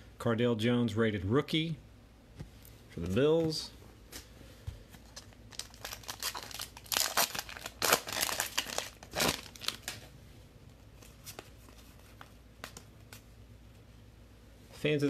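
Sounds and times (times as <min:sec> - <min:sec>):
plastic wrapper crinkling: 0:05.0 - 0:10.1.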